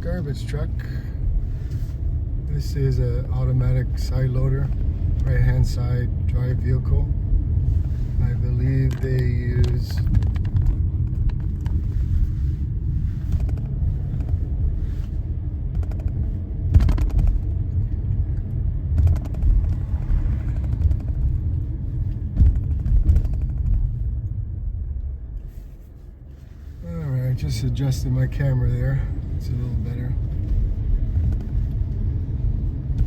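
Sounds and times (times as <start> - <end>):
vehicle engine rumble: 0.0 - 33.0
irregular knocks and clatter: 8.9 - 12.4, 13.2 - 14.5, 15.6 - 24.1.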